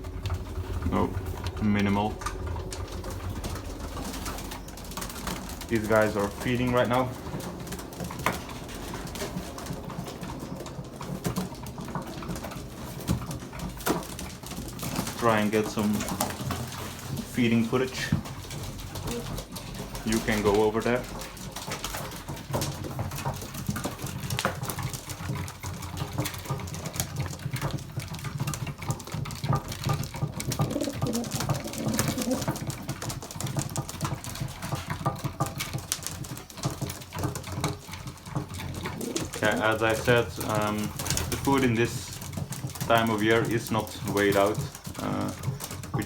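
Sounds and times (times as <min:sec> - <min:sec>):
low rumble: 0:00.0 - 0:16.2
pigeons cooing: 0:00.0 - 0:46.0.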